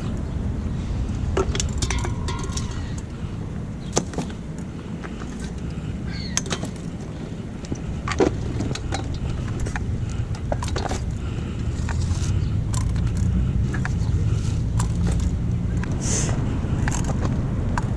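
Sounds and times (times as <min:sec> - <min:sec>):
steady low rumble: 0:00.0 - 0:17.9.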